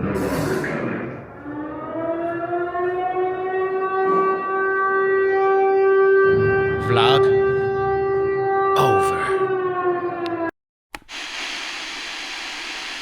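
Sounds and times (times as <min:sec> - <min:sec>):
air-raid siren wailing: 0:01.1 - 0:10.5.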